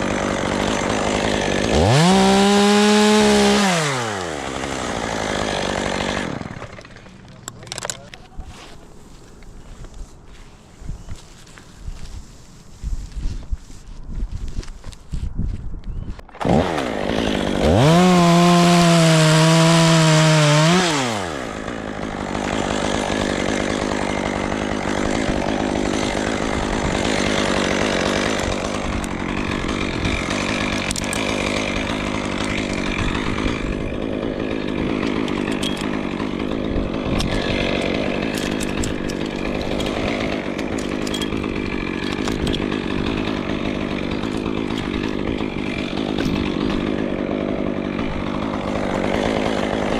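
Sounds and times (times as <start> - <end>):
chainsaw revving and idling: 0.0 - 9.2, 16.4 - 49.9.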